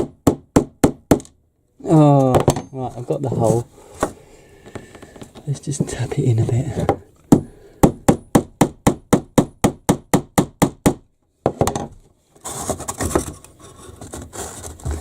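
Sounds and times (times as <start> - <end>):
rustling and scraping: 2.8 - 7.3, 11.9 - 15.0
hammer tapping on wood: 6.8 - 11.8.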